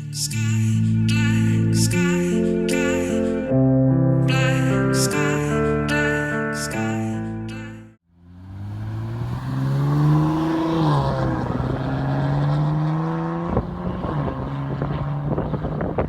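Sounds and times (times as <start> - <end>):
car engine accelerating: 8.1 - 16.0.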